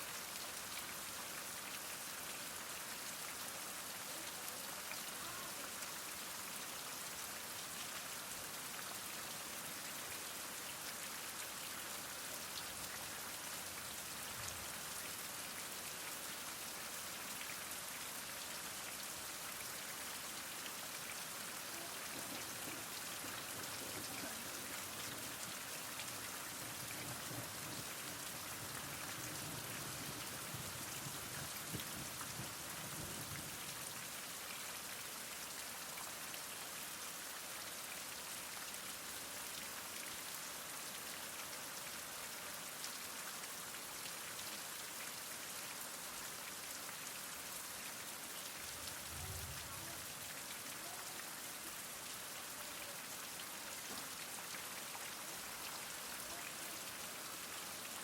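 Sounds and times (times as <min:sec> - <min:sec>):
heavy rain falling: 0:02.7 - 0:06.6, 0:15.8 - 0:34.1, 0:48.4 - 0:54.2.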